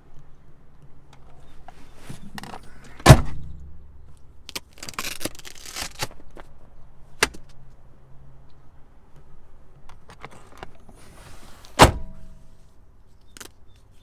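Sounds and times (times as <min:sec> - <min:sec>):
rattling and handling noises: 0:01.1 - 0:07.6, 0:09.2 - 0:12.5
car door shutting with heavy thunk: 0:01.8 - 0:03.8, 0:11.0 - 0:12.4.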